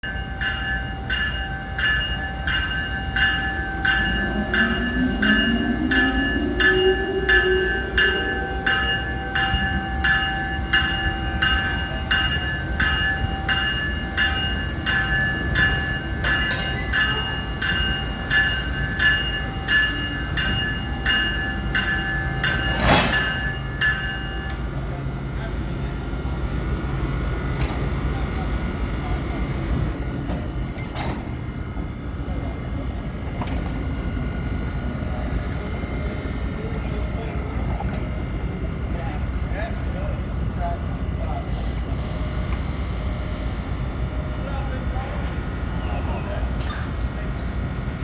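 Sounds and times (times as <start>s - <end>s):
idling train rumble: 0.0s - 48.0s
locomotive bell ringing: 0.0s - 48.0s
rising whine: 3.6s - 9.3s.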